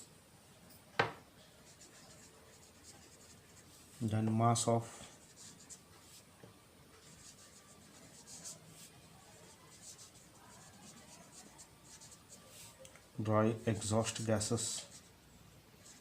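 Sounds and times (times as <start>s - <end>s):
pen scratching on paper: 1.7s - 3.7s, 5.2s - 6.2s, 7.0s - 12.8s, 15.8s - 16.0s.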